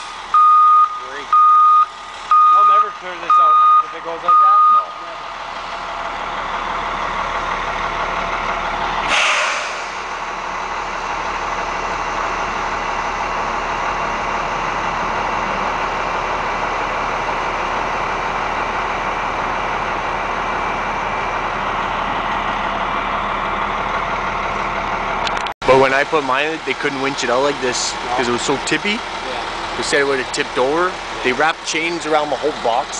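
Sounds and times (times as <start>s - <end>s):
heavy truck engine running: 0.0s - 32.9s
air brake hiss: 9.1s - 10.0s.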